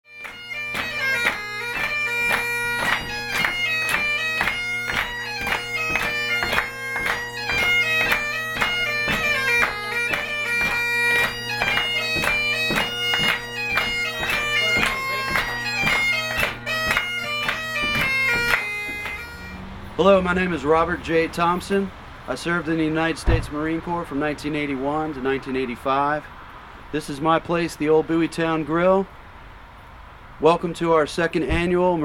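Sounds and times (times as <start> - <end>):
bagpipes playing: 0.0 - 21.8.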